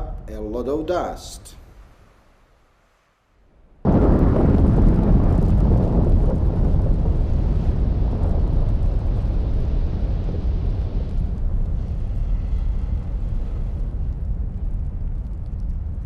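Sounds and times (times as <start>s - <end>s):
volcano eruption rumble: 3.4s - 16.0s.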